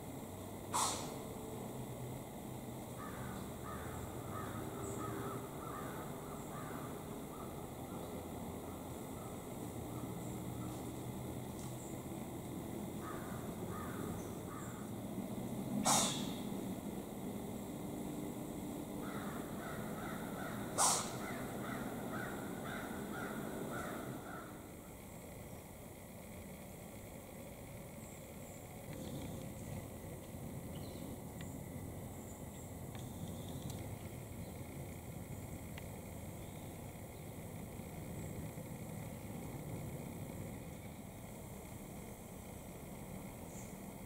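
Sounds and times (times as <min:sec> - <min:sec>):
bird cawing rapidly: 0:03.0 - 0:07.6, 0:13.0 - 0:14.8, 0:19.0 - 0:24.6.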